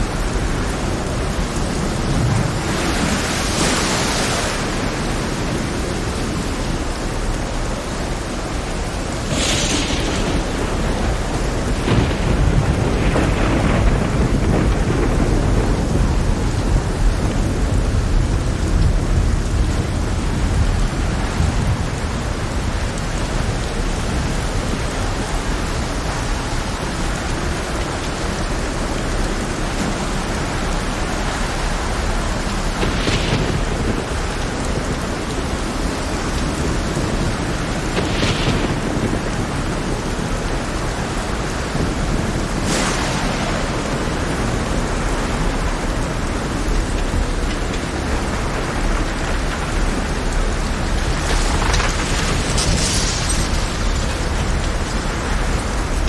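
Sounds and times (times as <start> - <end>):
heavy rain hissing: 0.0 - 56.0
deep rolling thunder: 8.8 - 56.0
gusts of hiss: 42.6 - 44.3.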